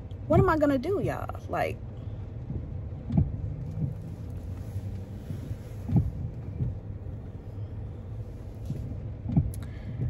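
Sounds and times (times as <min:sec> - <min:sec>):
car engine idling: 0:00.0 - 0:10.0
soft low thumps: 0:02.2 - 0:10.0.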